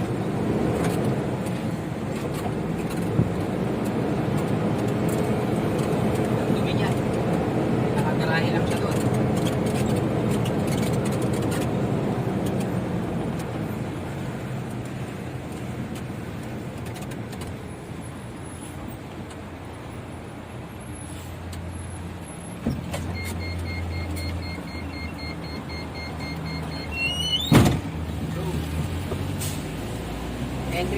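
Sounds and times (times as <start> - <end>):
electronic beeping: 23.1 - 27.6.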